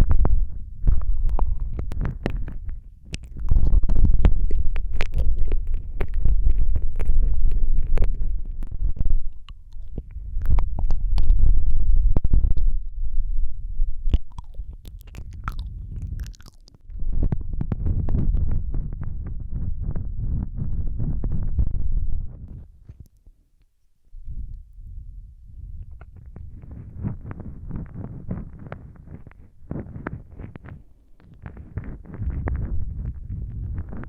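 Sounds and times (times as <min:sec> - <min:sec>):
wet mouth smacking and clicking: 0:00.0 - 0:11.8, 0:14.0 - 0:16.8
muffled low rumble: 0:00.0 - 0:23.3, 0:24.1 - 0:34.0.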